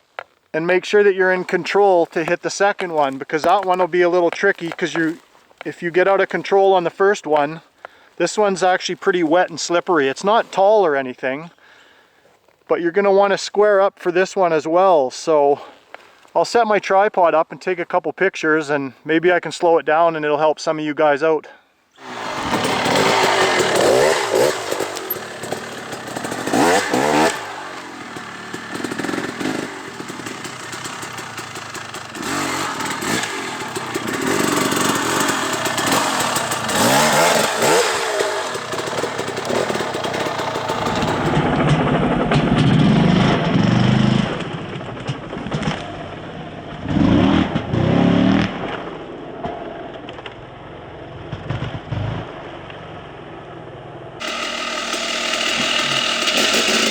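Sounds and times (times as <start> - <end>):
dirt bike engine revving: 22.0 - 44.4, 54.2 - 56.9.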